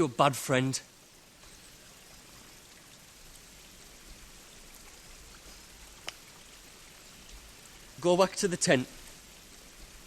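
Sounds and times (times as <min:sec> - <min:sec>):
faint outdoor hiss: 0:00.0 - 0:10.0
faint ticks: 0:05.3 - 0:06.4.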